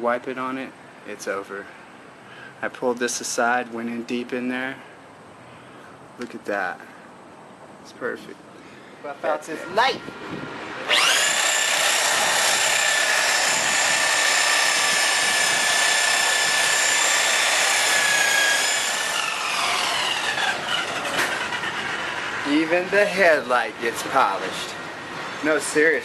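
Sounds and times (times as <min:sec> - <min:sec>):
electric polisher whining: 0:10.9 - 0:22.4.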